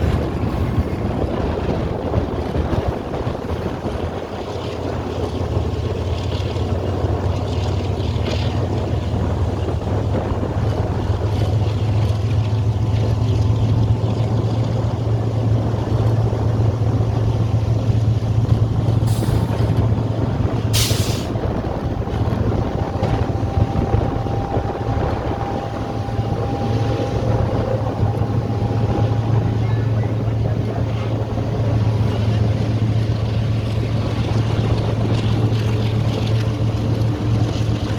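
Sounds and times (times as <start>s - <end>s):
diesel locomotive humming: 0.0s - 37.9s
short air hisses: 20.7s - 21.4s.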